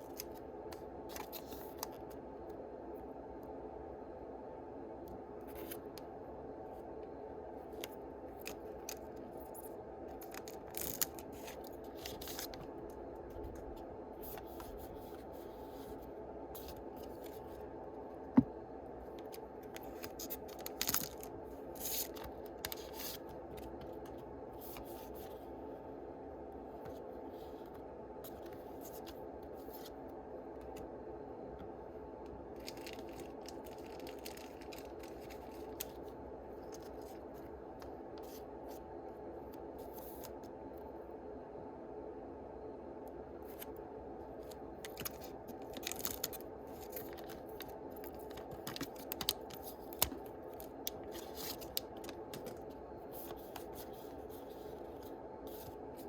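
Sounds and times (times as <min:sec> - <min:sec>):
steady background hum: 0:00.0 - 0:56.0
foil wrappers crinkling: 0:32.6 - 0:36.0, 0:44.8 - 0:53.8.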